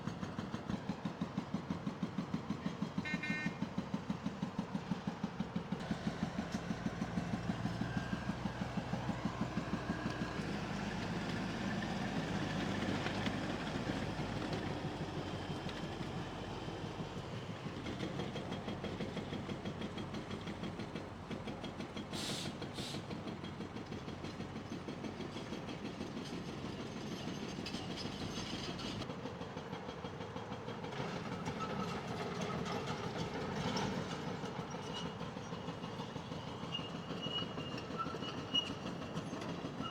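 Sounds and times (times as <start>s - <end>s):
diesel engines running: 0.0s - 29.1s.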